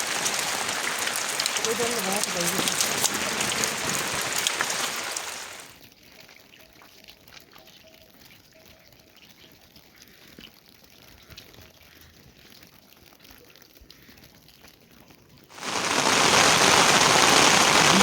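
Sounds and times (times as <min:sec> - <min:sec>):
heavy rain: 0:00.0 - 0:05.8, 0:15.6 - 0:18.0.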